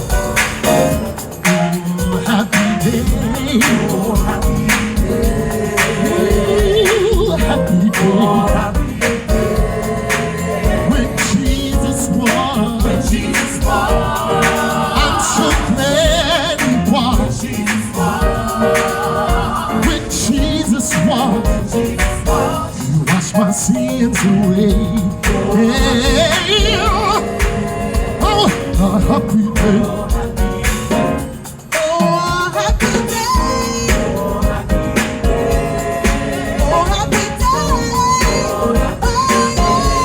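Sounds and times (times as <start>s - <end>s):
gospel choir singing: 0.0s - 40.0s
live band playing: 0.0s - 40.0s.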